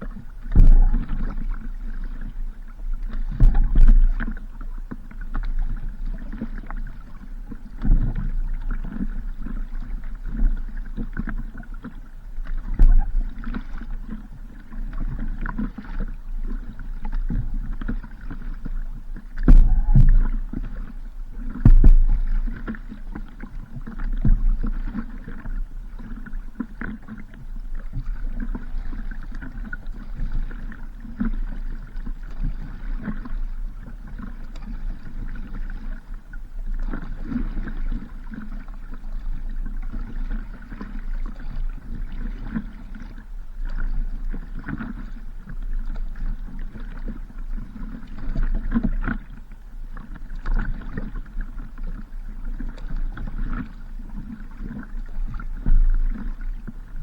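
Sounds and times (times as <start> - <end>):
wind on microphone: 0.0 - 4.4, 17.3 - 22.9
water noise: 0.0 - 57.0.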